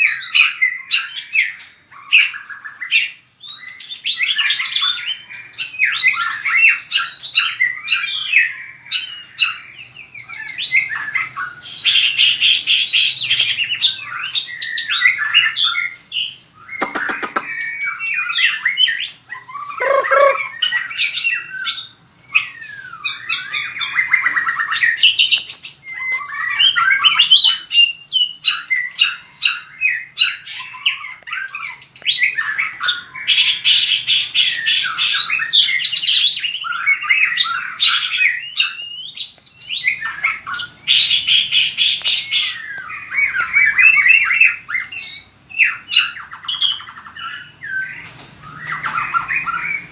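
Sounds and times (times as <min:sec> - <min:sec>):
bird singing whistles and trills: 0:00.0 - 0:49.9
bird ticking notes: 0:16.8 - 0:17.6, 0:19.8 - 0:20.4.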